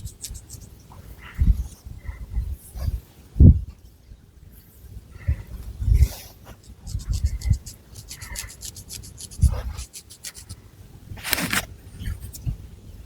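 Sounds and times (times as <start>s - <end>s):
fingernails scratching hair and scalp: 0.0s - 0.7s, 6.5s - 10.6s.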